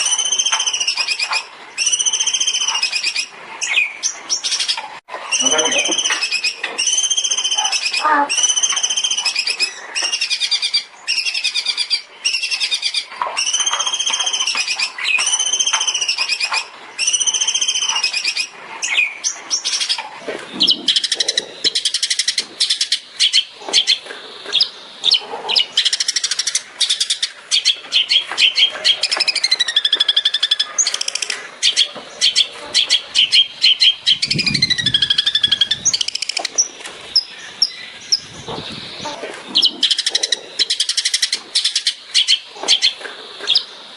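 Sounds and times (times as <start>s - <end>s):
shrike singing: 5.3s - 11.7s.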